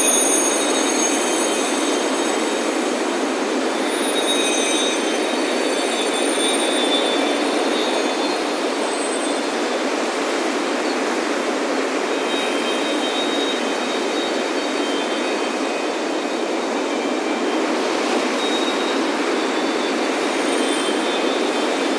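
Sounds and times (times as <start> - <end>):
wind chimes ringing: 0.0 - 9.8
ocean surf on a beach: 0.0 - 21.9.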